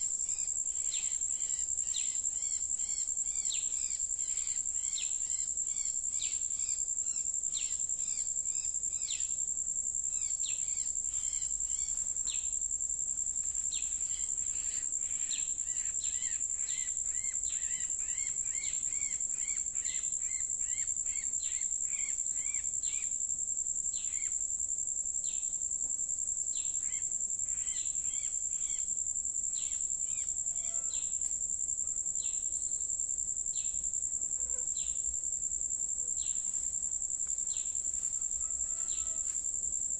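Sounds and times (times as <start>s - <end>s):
shrill insect drone: 26.5s - 35.2s, 36.0s - 39.9s.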